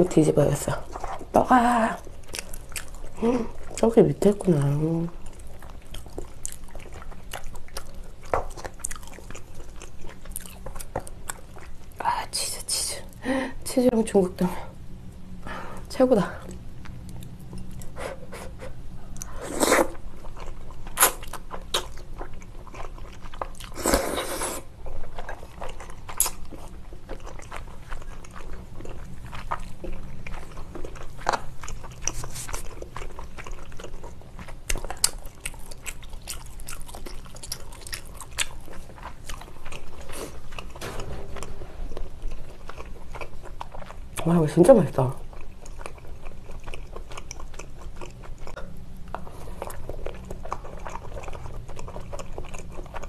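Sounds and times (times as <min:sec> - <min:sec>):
chewing with wet mouth clicks: 0:02.0 - 0:03.9, 0:05.0 - 0:12.1, 0:19.1 - 0:23.9, 0:24.9 - 0:40.9, 0:45.0 - 0:53.0.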